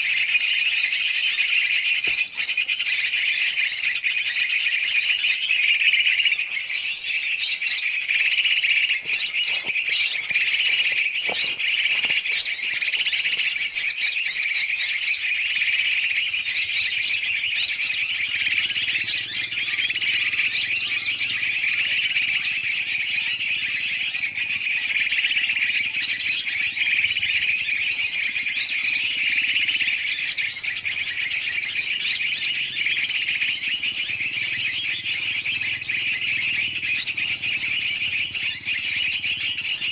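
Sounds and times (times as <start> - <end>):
many birds calling and chirping: 0.0 - 39.9.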